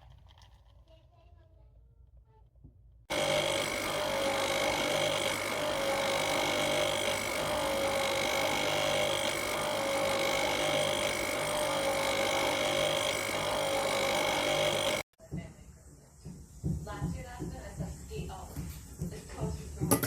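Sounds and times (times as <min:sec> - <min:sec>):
coffee machine pump humming: 0:03.1 - 0:15.0.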